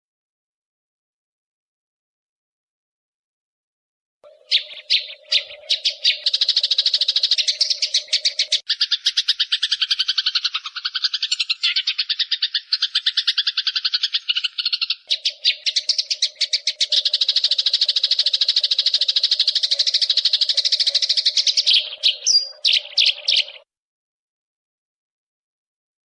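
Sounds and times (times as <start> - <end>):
sparrows chattering: 4.2 - 23.7.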